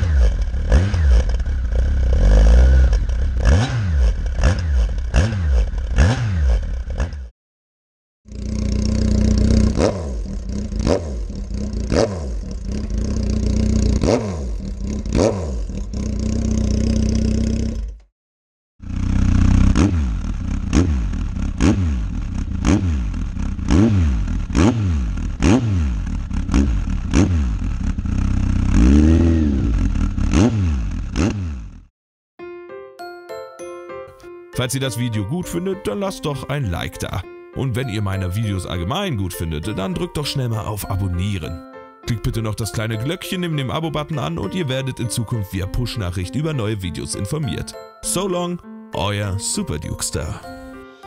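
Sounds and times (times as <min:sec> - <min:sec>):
motorcycle engine idling: 0:00.0 - 0:06.0, 0:08.3 - 0:18.0, 0:18.8 - 0:31.3
engine revving: 0:00.0 - 0:07.3, 0:08.3 - 0:18.1, 0:18.8 - 0:31.9.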